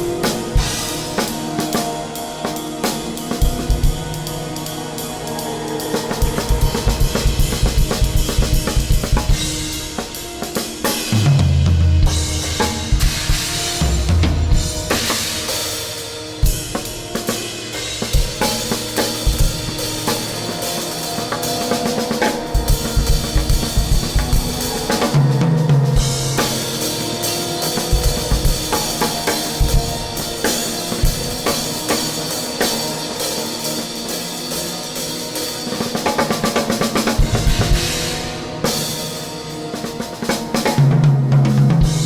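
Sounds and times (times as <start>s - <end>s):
held droning tones: 18.7s - 34.0s.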